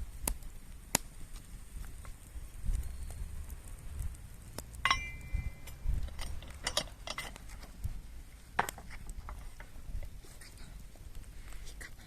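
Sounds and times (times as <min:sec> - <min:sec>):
metal cookware clinking: 0:04.8 - 0:07.4.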